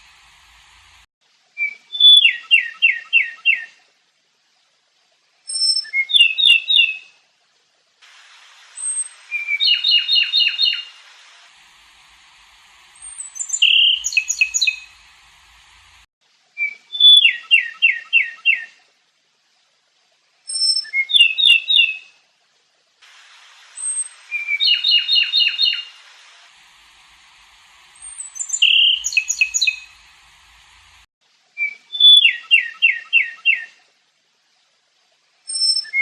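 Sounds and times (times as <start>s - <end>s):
songbird singing sharp phrases: 1.6s - 3.7s, 5.5s - 7.0s, 8.8s - 11.0s, 12.0s - 15.8s, 16.6s - 18.7s, 20.5s - 22.0s, 23.8s - 26.0s, 26.9s - 31.0s, 31.6s - 33.7s, 35.5s - 36.0s.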